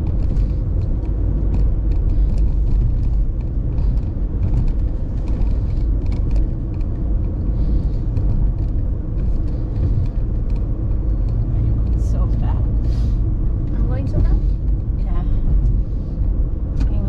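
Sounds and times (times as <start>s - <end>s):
car cabin road and engine rumble: 0.0s - 17.0s.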